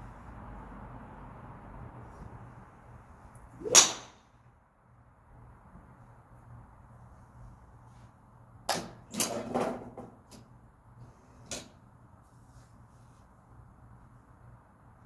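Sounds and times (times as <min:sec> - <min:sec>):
golf club striking ball: 0:03.6 - 0:04.2.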